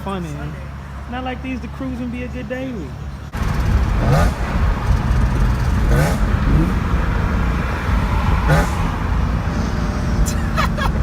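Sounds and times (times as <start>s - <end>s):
car engine accelerating: 3.3s - 11.0s.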